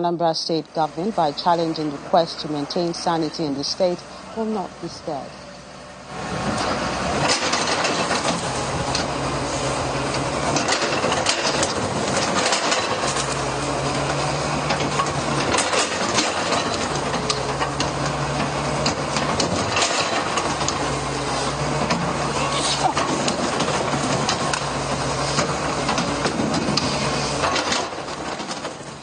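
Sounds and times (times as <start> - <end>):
demolition machine engine labouring: 0.0 - 29.0
clanking and scraping: 5.1 - 29.0
falling debris clattering: 18.8 - 21.0.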